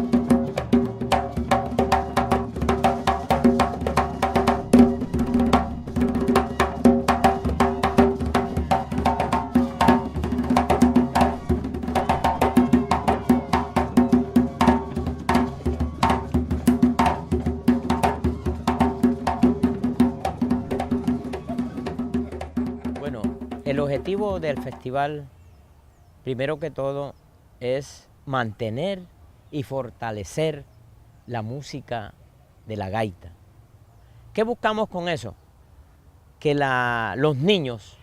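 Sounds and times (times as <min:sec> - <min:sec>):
cane flutes holding notes: 0:00.0 - 0:24.8
fast hand drum percussion: 0:00.0 - 0:25.0.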